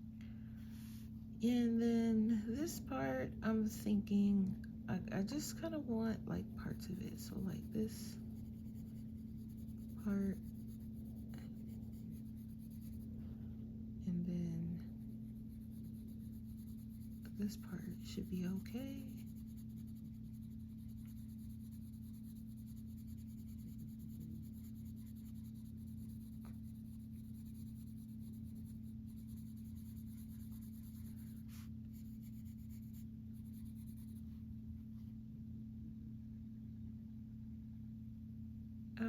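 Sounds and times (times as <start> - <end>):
low hum: 0.0 - 39.0
pencil scratching on paper: 6.6 - 13.2, 14.8 - 34.2.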